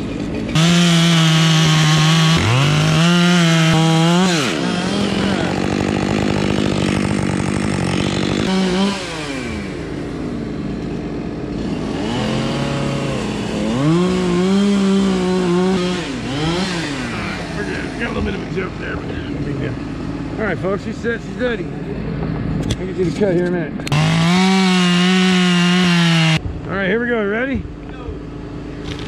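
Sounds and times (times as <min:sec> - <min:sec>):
chainsaw cutting wood: 0:00.0 - 0:20.4, 0:23.8 - 0:26.4, 0:28.8 - 0:29.0.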